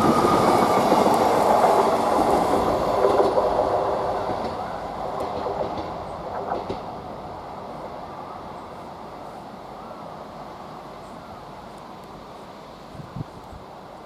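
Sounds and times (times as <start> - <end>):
train wheels rumbling on rails: 0.0 - 9.2.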